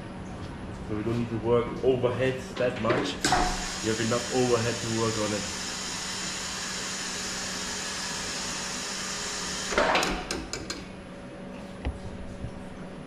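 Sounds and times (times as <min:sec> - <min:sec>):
vehicle lift hissing: 0:03.3 - 0:09.8.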